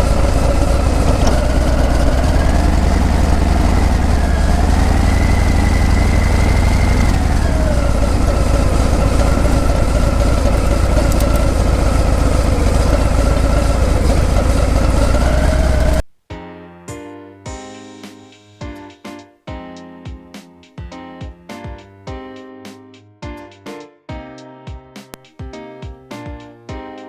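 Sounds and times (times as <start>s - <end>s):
motorcycle exhaust running: 0.0s - 16.0s.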